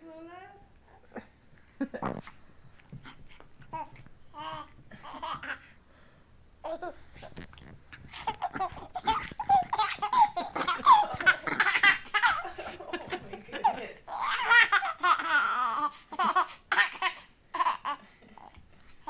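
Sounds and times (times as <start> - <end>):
baby laughing: 3.7 - 5.7, 6.6 - 18.6.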